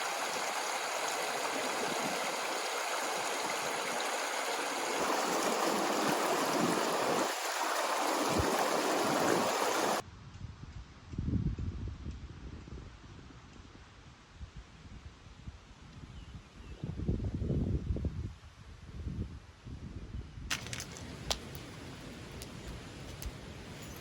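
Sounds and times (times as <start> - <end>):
water flowing: 0.0 - 10.0, 20.5 - 24.0.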